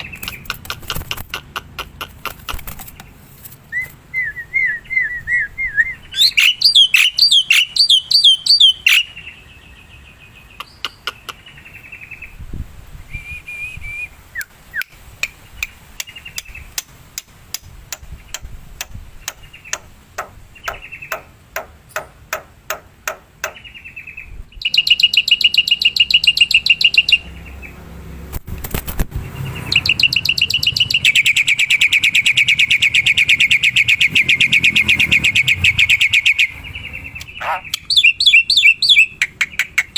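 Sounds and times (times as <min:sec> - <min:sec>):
bird chirps and whistles: 0:03.7 - 0:09.1, 0:13.1 - 0:14.9, 0:24.6 - 0:27.2, 0:29.7 - 0:39.9.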